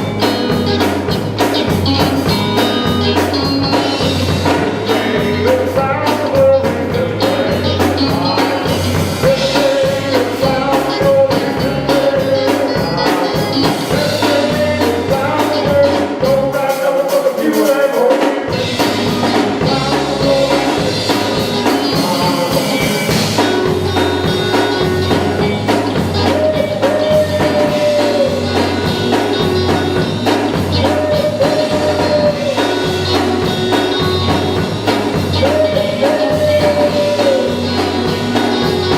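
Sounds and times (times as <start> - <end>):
bass: 0.0 - 38.9
drums: 0.0 - 38.9
gospel group singing: 4.6 - 24.6.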